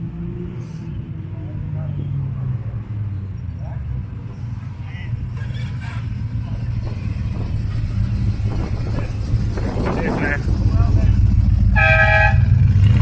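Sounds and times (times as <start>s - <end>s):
car engine running: 5.0s - 13.0s.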